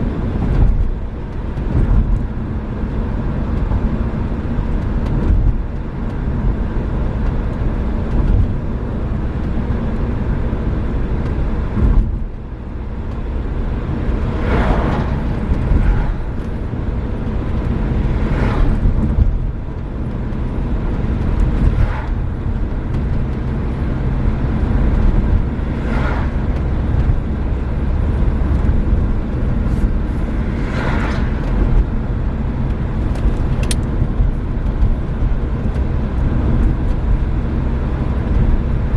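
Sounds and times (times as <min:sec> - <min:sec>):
car engine and road noise: 0:00.0 - 0:38.9
brief rushing sounds: 0:29.7 - 0:31.8.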